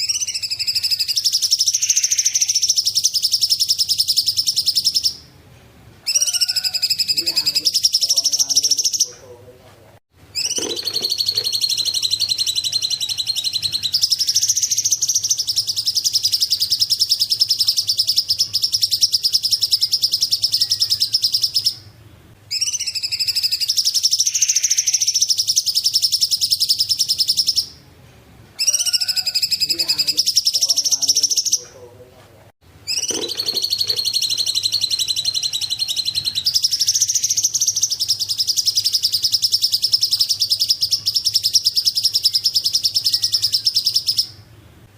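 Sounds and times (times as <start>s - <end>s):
bird singing high trills: 0.0s - 5.3s, 6.0s - 9.1s, 10.3s - 21.9s, 22.5s - 27.8s, 28.6s - 31.6s, 32.8s - 44.5s.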